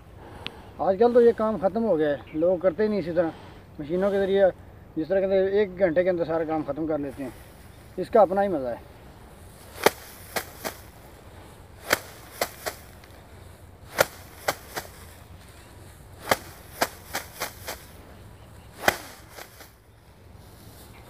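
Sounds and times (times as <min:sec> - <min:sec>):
rice stalks beaten on hard surface: 0:09.4 - 0:18.1, 0:18.7 - 0:19.8.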